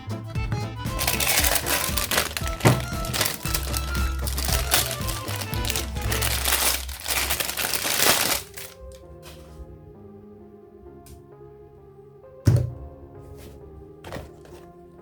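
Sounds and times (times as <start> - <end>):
background music: 0.0 - 15.0
toy packaging crinkling: 0.9 - 9.0.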